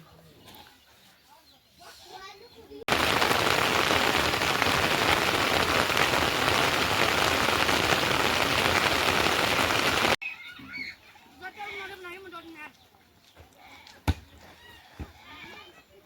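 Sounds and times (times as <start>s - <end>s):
heavy rain falling: 2.9s - 10.2s.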